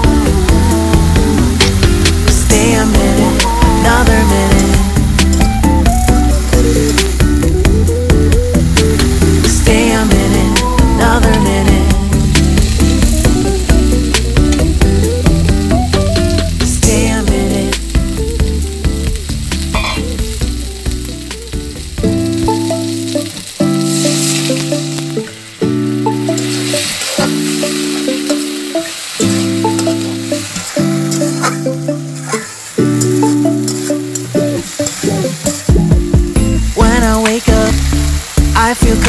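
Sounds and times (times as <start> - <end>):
vegetables sizzling in oil: 0.0 - 39.0.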